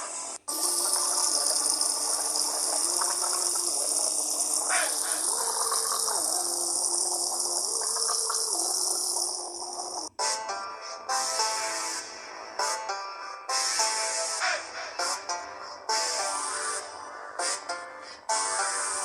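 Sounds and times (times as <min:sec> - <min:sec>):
running water gushing: 0:00.5 - 0:10.2.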